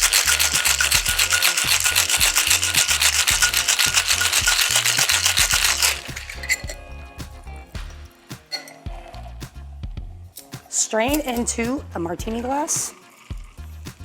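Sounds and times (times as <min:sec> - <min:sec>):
ice rattling in cocktail shaker: 0:00.0 - 0:06.9
background music with bass: 0:00.0 - 0:14.0.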